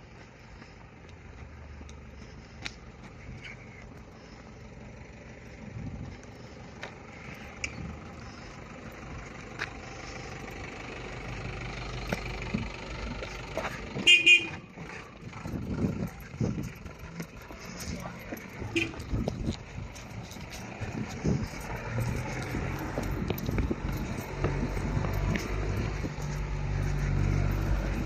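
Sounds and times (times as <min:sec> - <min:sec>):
vehicle engine and road noise: 0:00.0 - 0:28.0
car horn toots: 0:14.0 - 0:14.7, 0:18.7 - 0:19.1.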